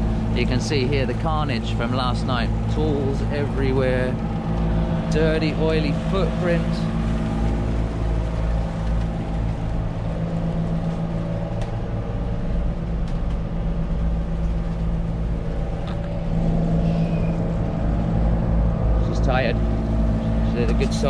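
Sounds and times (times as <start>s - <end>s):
boat engines droning: 0.0s - 21.0s.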